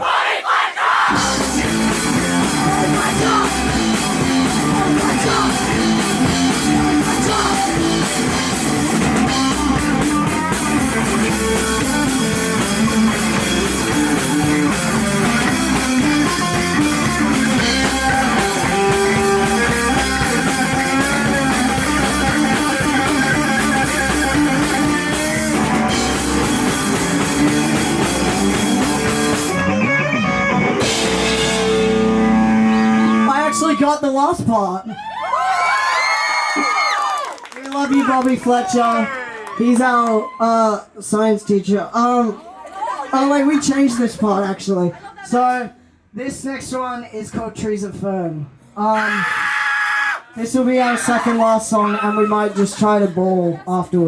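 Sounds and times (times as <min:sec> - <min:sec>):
live rock band playing: 0:01.1 - 0:33.8.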